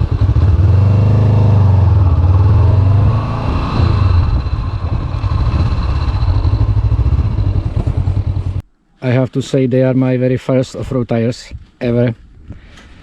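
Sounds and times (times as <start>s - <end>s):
motorcycle engine at low revs: 0.0s - 8.6s.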